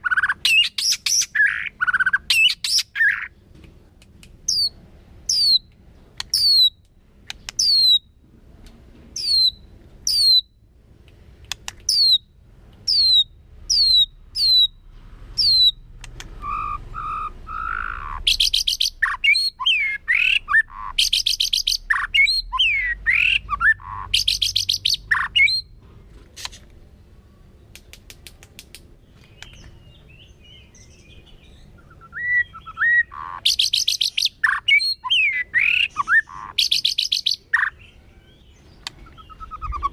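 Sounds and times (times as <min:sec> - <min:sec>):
bird sharp downward calls: 0:00.0 - 0:03.4, 0:04.5 - 0:08.2, 0:09.2 - 0:10.6, 0:11.8 - 0:14.8, 0:15.4 - 0:25.7, 0:29.2 - 0:39.9
bird song whistles and trills: 0:00.0 - 0:03.4, 0:04.5 - 0:08.2, 0:09.2 - 0:10.6, 0:11.8 - 0:14.8, 0:15.4 - 0:25.8, 0:29.0 - 0:39.9.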